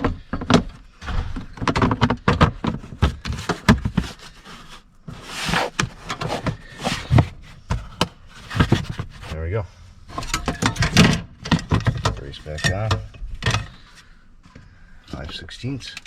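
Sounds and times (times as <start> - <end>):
hard parts clicking and knocking: 0.0 - 9.3, 10.2 - 13.8
scraping rustle: 2.7 - 9.4.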